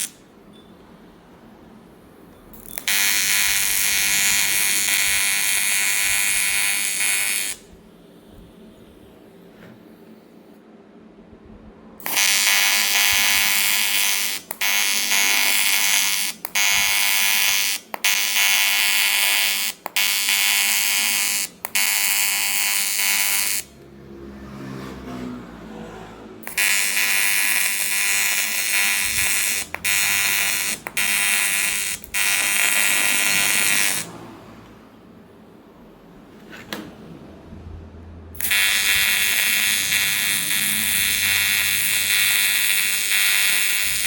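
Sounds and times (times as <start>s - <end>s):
welding arc buzzing: 0.0s - 0.2s, 2.5s - 7.8s, 12.0s - 23.8s, 26.4s - 34.2s, 38.4s - 44.0s.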